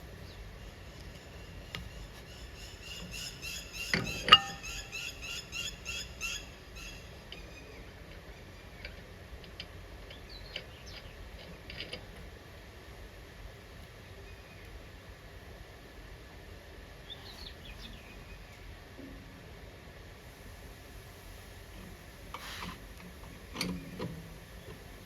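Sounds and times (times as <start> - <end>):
birds chirping: 0.1 - 8.9, 17.0 - 18.6.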